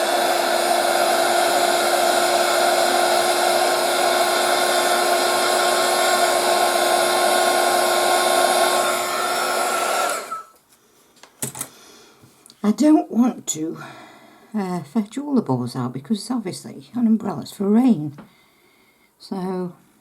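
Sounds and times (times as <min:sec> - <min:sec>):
hot-air blower whining: 0:00.0 - 0:10.6.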